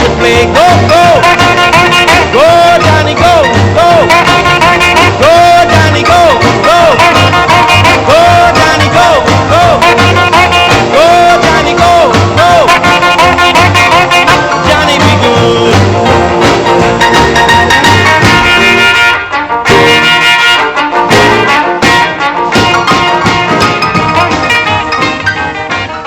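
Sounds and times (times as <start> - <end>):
brass music over a beat: 0.0 - 26.0.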